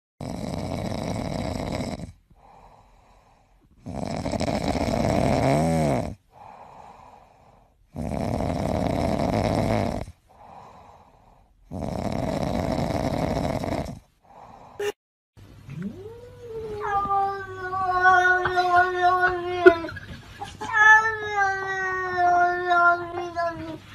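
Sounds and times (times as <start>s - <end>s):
cat snoring: 0.2s - 14.5s
cat breathing softly: 2.3s - 3.8s, 6.3s - 7.8s, 10.3s - 11.6s.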